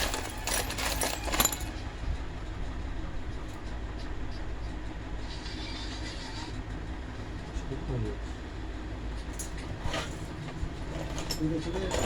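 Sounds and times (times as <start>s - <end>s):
metal parts clinking: 0.0s - 1.8s, 9.4s - 12.0s
low steady rumble: 0.0s - 12.0s.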